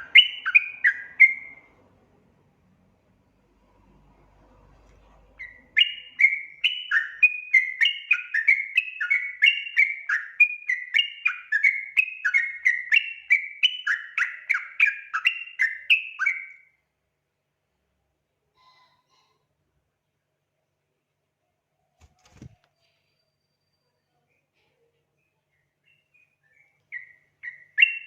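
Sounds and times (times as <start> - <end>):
bulbul singing: 0.0 - 1.8, 5.4 - 16.7, 25.2 - 28.0.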